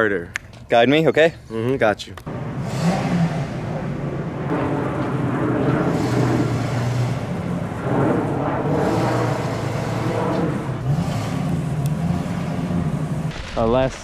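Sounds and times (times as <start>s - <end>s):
truck engine reversing: 2.3s - 13.3s.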